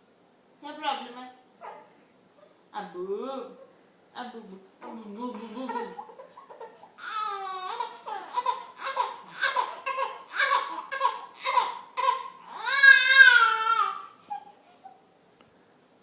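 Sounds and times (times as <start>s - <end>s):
baby babbling and squealing: 1.6s - 2.6s, 4.8s - 15.0s.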